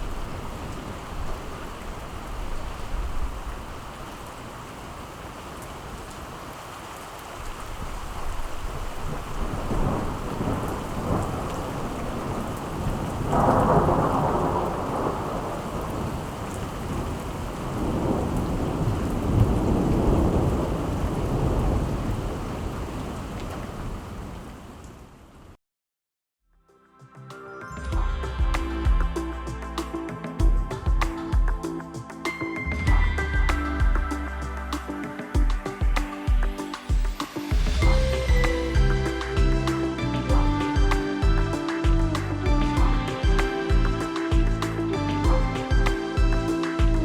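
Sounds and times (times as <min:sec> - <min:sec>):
steady rain falling: 0:00.0 - 0:25.6, 0:28.2 - 0:47.0
rolling thunder: 0:07.7 - 0:24.8.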